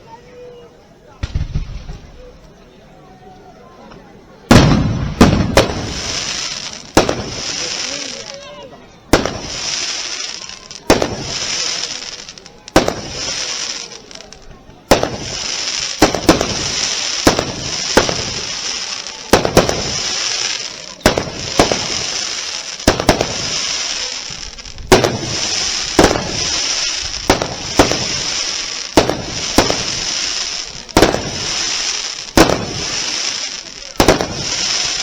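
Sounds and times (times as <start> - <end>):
firework shells bursting: 4.5 - 8.0, 9.1 - 35.0
high hiss: 9.3 - 14.4, 15.1 - 35.0.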